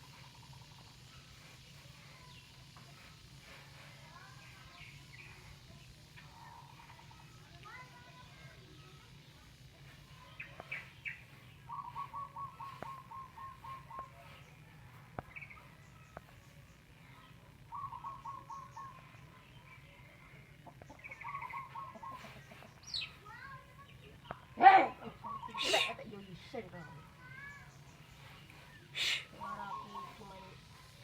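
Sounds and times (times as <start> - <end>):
high bird chirps: 10.2 - 14.4, 17.7 - 19.7.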